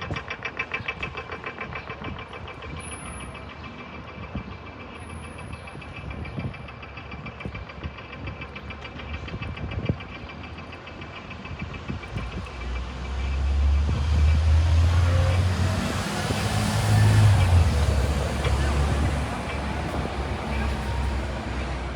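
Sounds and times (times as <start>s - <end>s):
engine idling with knocking clatter: 0.0s - 21.9s.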